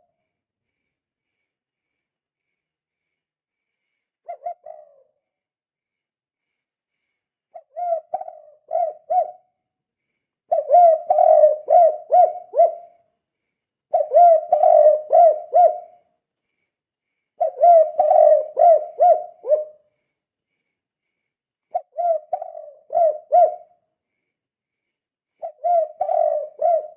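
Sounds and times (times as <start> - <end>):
dove cooing: 4.2 - 5.2, 7.5 - 9.5, 10.5 - 13.0, 13.9 - 16.0, 17.4 - 19.9, 21.7 - 23.8, 25.4 - 26.9.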